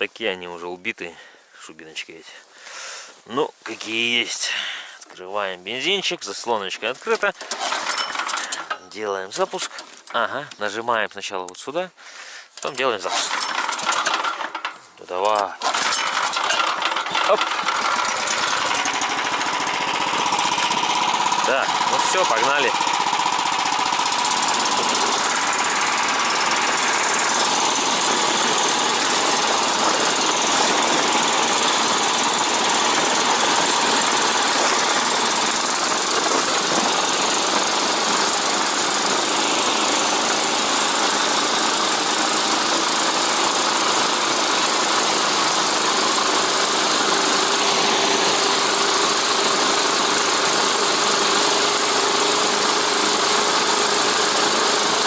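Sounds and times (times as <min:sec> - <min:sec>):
small single-cylinder engine running: 0:07.3 - 0:08.8, 0:13.1 - 0:14.7, 0:15.3 - 0:55.0.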